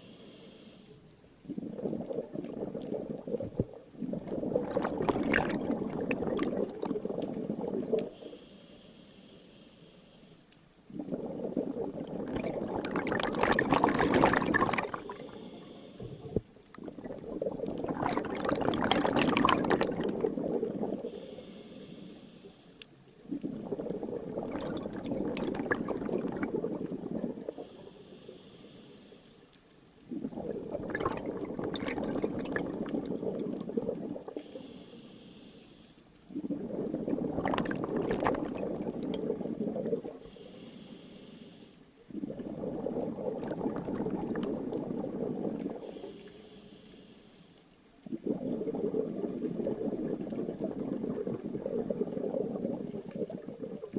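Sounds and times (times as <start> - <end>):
regulator air hiss: 0.0 - 1.0, 8.2 - 10.5, 15.1 - 16.4, 21.1 - 22.8, 27.6 - 29.5, 34.4 - 36.0, 40.2 - 42.0, 45.9 - 47.6
bubbling underwater exhalations: 1.4 - 8.2, 10.9 - 15.3, 16.0 - 21.2, 23.2 - 27.7, 30.0 - 34.4, 36.3 - 40.3, 42.1 - 46.0, 48.0 - 53.9.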